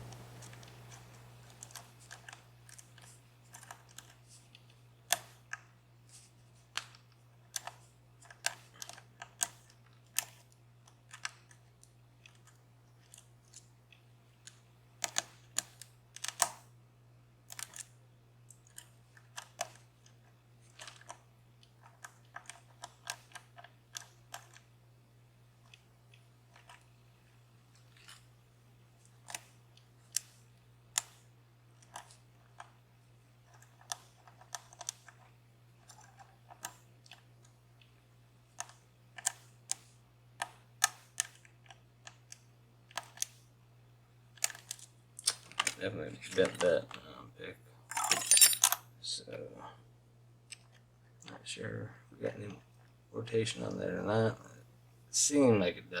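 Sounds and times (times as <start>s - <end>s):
steady low hum: 0.0s - 10.5s
lock pick clicking: 47.9s - 48.8s.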